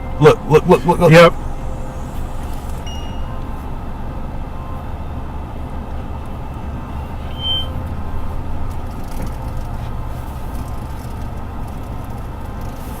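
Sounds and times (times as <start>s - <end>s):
short high beep: 2.8s - 3.6s, 7.2s - 7.8s.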